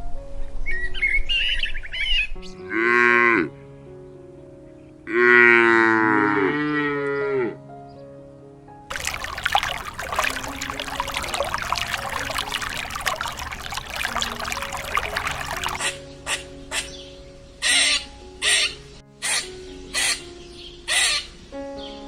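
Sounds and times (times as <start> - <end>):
birds chirping: 8.9 - 15.9
running water: 8.9 - 15.9.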